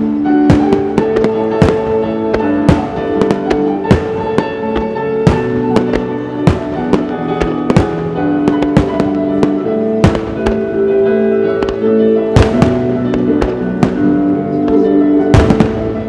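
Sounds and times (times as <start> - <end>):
music with sustained melodic tones: 0.0 - 16.0
firework shells bursting: 0.5 - 10.7.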